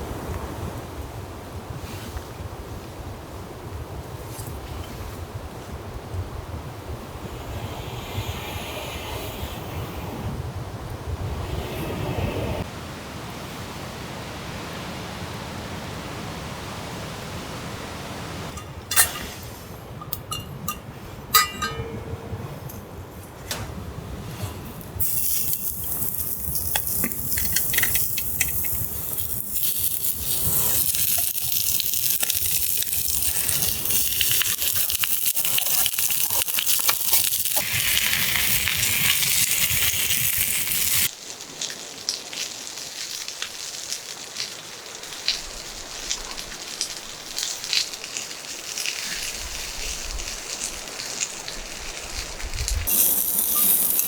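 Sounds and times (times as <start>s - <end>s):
campfire sizzling and hissing: 6.6s - 20.0s, 24.2s - 54.0s
fire crackling and popping: 24.6s - 54.0s.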